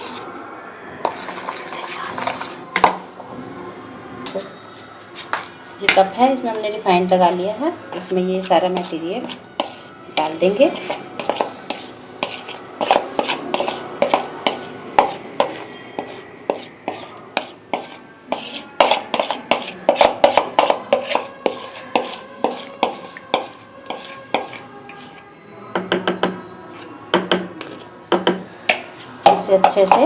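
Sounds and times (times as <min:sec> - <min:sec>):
spoon clinking against a bowl: 0:08.0 - 0:25.2.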